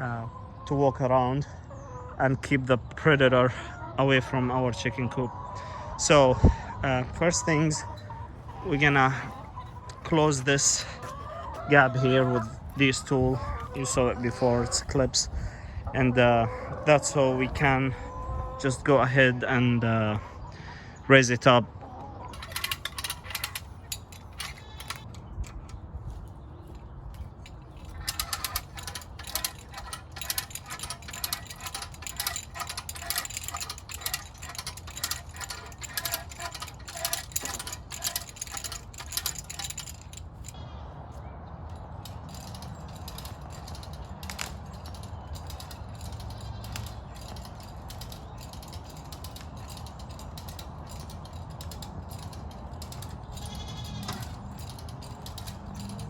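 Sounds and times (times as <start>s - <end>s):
ratchet strap clicking: 22.3s - 25.8s, 27.1s - 40.6s, 41.7s - 56.0s.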